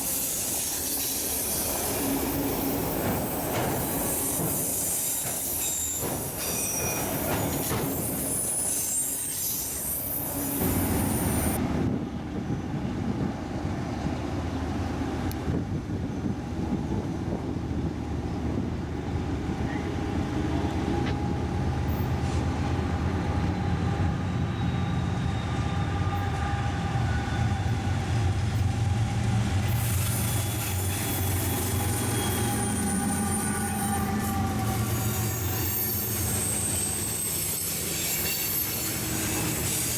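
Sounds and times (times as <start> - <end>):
train wheels squealing: 0.0 - 11.6, 19.6 - 20.6, 23.2 - 39.9
clickety-clack over rail joints: 1.8 - 9.1.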